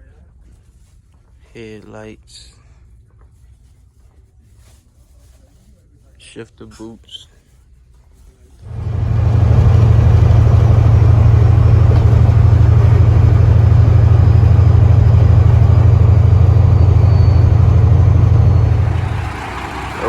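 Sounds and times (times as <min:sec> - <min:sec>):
diesel truck engine droning: 0:08.7 - 0:20.0.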